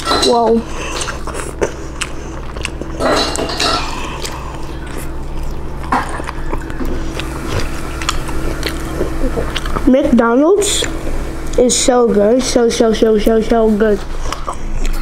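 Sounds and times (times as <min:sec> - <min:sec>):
biting and chewing: 0:00.0 - 0:10.1, 0:14.1 - 0:15.0
steady low hum: 0:00.0 - 0:15.0.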